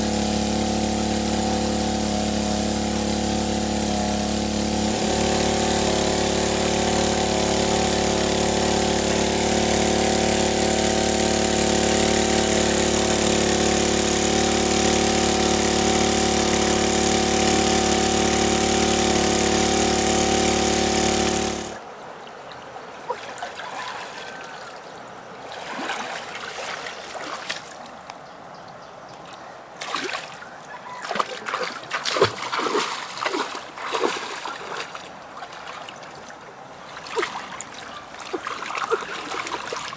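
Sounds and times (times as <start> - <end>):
small engine running: 0.0 - 21.8, 31.0 - 35.2
water splashing: 22.9 - 27.9, 29.8 - 39.9.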